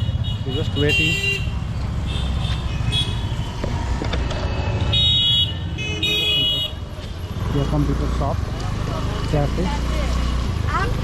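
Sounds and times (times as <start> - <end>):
vehicle horns honking: 0.0 - 3.6, 4.5 - 7.9
road traffic: 0.0 - 11.0.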